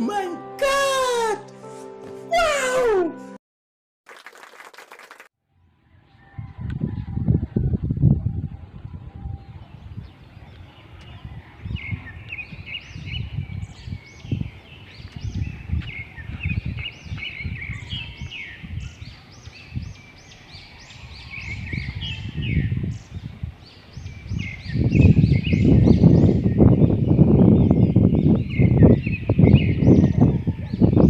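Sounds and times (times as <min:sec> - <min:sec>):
small birds chirping: 0:09.5 - 0:31.0.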